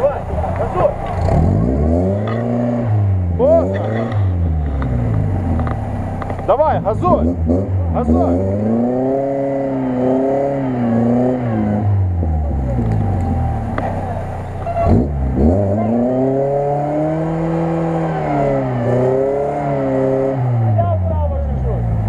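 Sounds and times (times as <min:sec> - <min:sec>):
car engine revving hard: 0:00.0 - 0:22.0.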